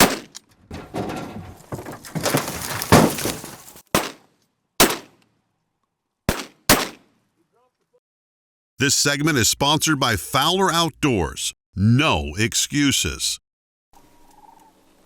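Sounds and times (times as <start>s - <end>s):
shotgun shots: 0.0s - 0.3s, 4.8s - 5.1s, 6.3s - 7.0s.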